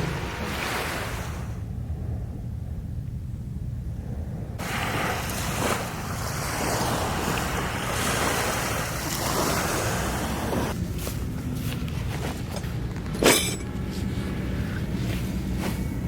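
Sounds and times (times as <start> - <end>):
wind rumbling on microphone: 0.0 - 16.0
sea waves washing onto beach: 4.6 - 11.2.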